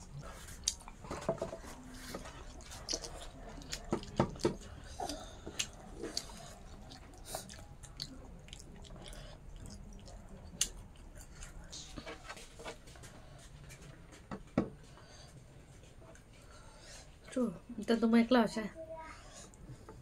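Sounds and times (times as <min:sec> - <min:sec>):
close-up chewing with mouth smacks: 0:00.0 - 0:14.2.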